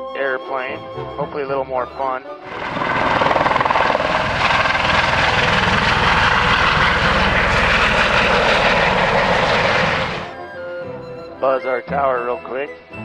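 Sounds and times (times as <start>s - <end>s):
helicopter rotor and turbine: 2.4s - 10.4s.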